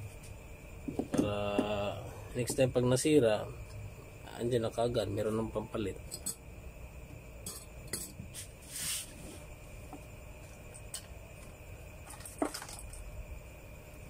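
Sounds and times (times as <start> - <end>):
short scraping hiss: 8.3 - 9.4.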